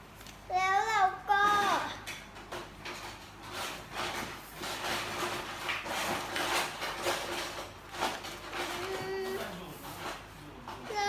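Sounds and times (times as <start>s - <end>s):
paper rustling and crinkling: 2.8s - 11.0s.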